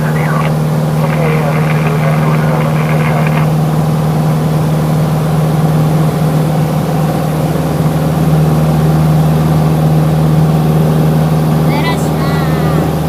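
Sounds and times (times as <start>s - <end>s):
radio voice: 0.0s - 3.5s, 11.7s - 12.9s
propeller aircraft engine drone: 0.0s - 13.0s.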